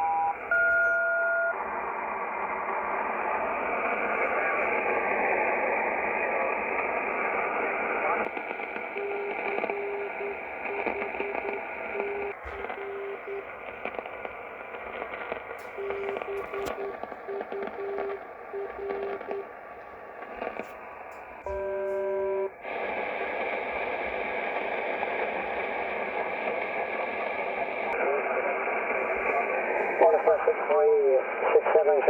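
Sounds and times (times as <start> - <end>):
morse code tone: 0.0 - 1.6, 8.8 - 14.1, 15.5 - 22.7
radio static hiss and crackles: 0.0 - 32.0.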